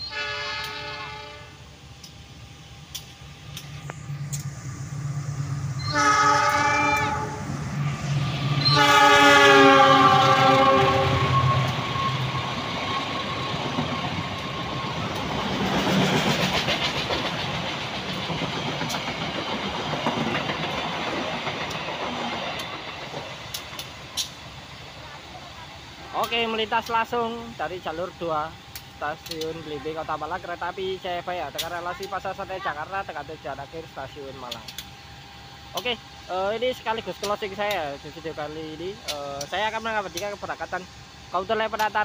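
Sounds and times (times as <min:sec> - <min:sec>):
train horn blasts: 0:00.0 - 0:01.6, 0:05.8 - 0:07.5, 0:08.6 - 0:12.4
wheels rushing on rails: 0:00.0 - 0:42.0
locomotive engine rumble: 0:00.8 - 0:42.0.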